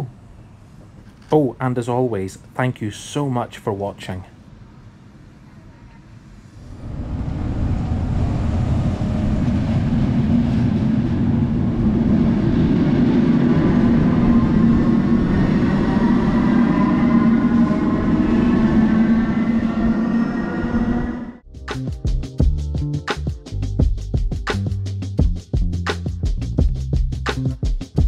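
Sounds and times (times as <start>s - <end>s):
rising train whine: 0.0s - 1.0s, 4.5s - 21.5s
train wheels rumbling on rails: 6.6s - 21.3s.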